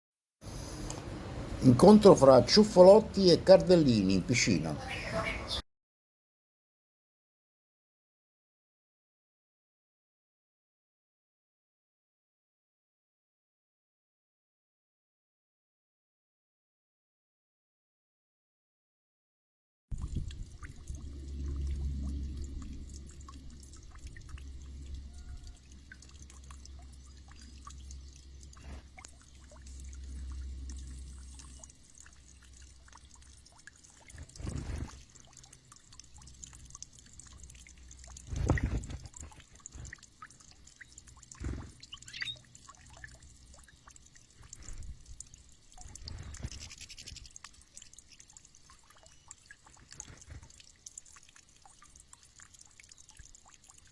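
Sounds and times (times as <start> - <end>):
water splashing: 20.0 - 53.9.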